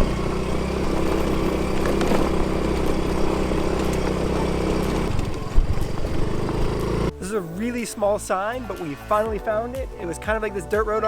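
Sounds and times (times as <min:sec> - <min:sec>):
motor scooter engine idling: 0:00.0 - 0:07.8.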